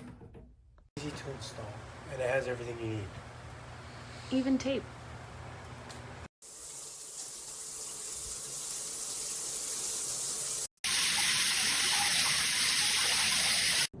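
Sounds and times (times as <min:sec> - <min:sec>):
shower head spraying water: 0:06.4 - 0:13.9.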